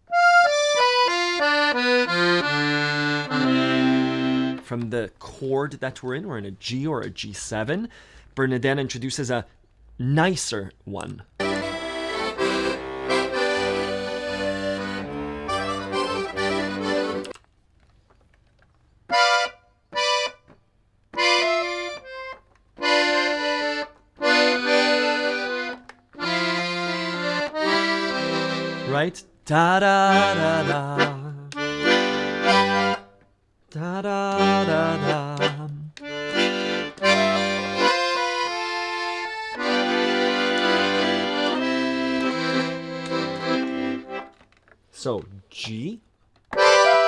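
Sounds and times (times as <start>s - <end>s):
accordion playing: 0.0s - 4.8s, 11.4s - 17.4s, 19.1s - 20.5s, 21.2s - 33.2s, 33.8s - 44.6s, 46.5s - 47.0s.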